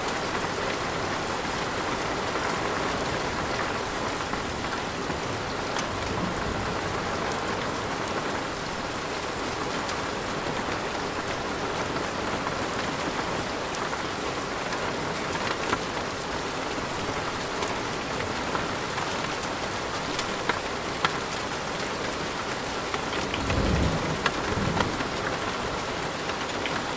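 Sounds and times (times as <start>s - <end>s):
heavy rain falling: 0.0s - 26.9s
low rumble of thunder: 2.4s - 11.2s, 23.2s - 26.2s
raindrops ticking: 14.6s - 26.9s.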